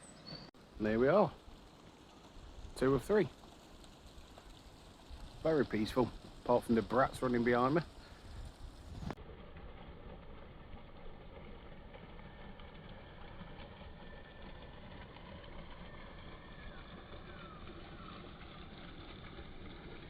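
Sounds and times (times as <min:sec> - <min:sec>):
wind buffeting microphone: 0:05.0 - 0:09.2.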